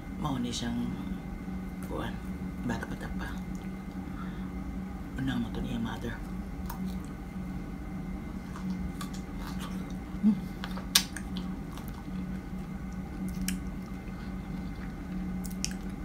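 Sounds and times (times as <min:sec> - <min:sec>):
steady low hum: 0:00.0 - 0:16.0
person chewing strawberry: 0:06.6 - 0:07.2, 0:08.3 - 0:16.0.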